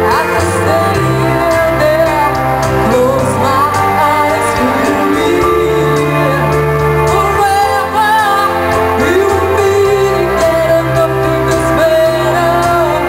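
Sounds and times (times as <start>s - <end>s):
live band playing pop ballad: 0.0s - 13.0s
woman singing: 0.0s - 13.0s.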